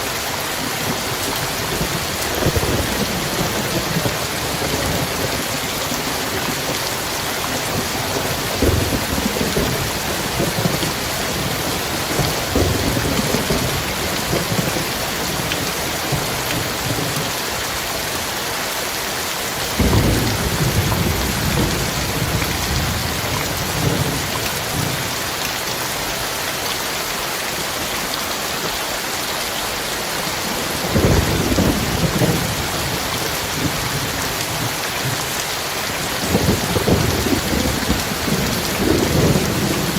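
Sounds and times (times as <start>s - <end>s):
heavy rain: 0.0s - 39.9s
thunder rumbling: 0.8s - 17.4s, 19.6s - 25.3s, 30.4s - 39.9s.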